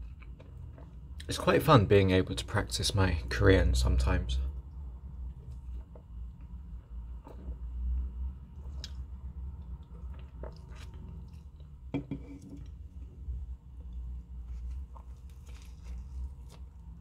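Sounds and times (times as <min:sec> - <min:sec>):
low steady hum: 0:00.0 - 0:17.0
chewing with wet mouth clicks: 0:08.6 - 0:11.8.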